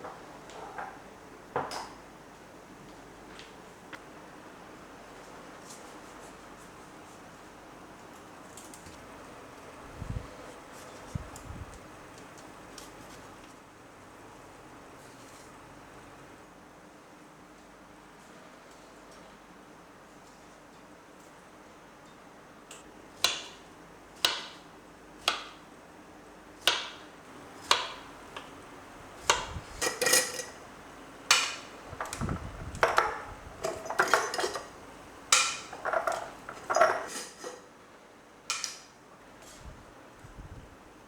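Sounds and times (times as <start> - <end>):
utensils and dishes clinking: 29.8 - 30.6, 32.8 - 37.7.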